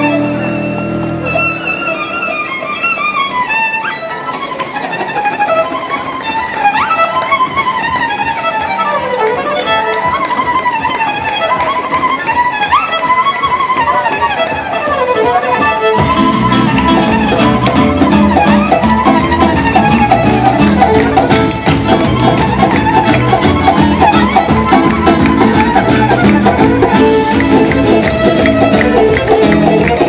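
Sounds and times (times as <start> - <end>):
fast violin playing: 0.0 - 30.0
lower accompaniment: 0.0 - 30.0.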